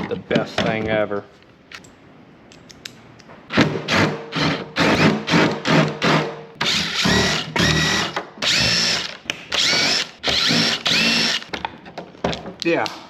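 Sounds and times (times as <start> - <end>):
impact driver bursts: 3.5 - 11.5.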